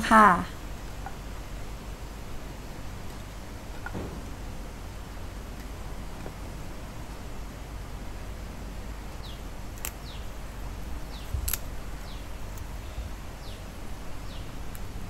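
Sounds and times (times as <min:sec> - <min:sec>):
steady low hum: 0:00.0 - 0:15.0
soft thump: 0:03.9 - 0:04.4
sharp light clicks: 0:09.7 - 0:10.3, 0:11.1 - 0:12.7.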